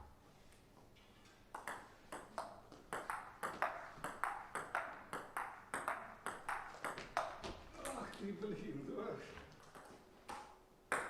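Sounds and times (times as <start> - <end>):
table tennis ball clicking: 1.6 - 8.0.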